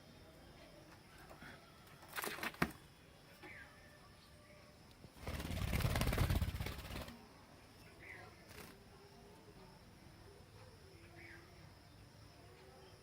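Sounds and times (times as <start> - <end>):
faint bird chirp: 0.0 - 13.0
bird wings flapping: 5.2 - 7.2, 8.5 - 8.8.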